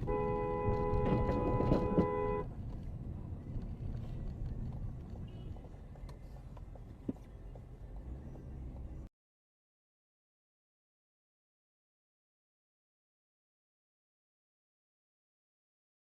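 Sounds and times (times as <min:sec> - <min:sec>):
two-note car horn: 0:00.0 - 0:02.5
car and road noise rumble: 0:00.0 - 0:09.1.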